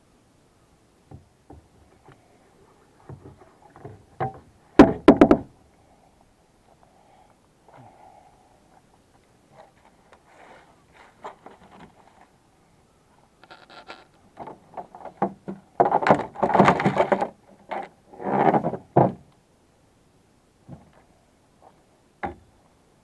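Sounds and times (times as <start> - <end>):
irregular scraping and knocking: 13.4 - 19.2.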